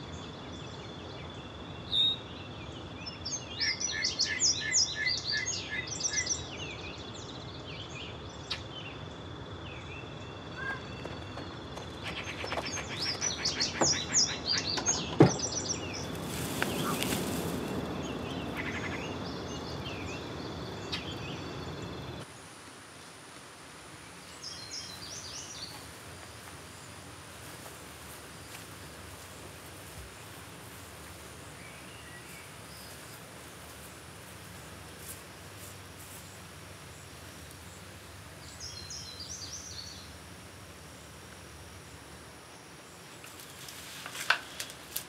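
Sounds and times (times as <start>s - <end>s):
rural outdoor ambience: 0.0s - 45.0s
small birds chirping: 0.2s - 22.2s, 24.2s - 44.8s
brief rustle: 43.2s - 45.0s.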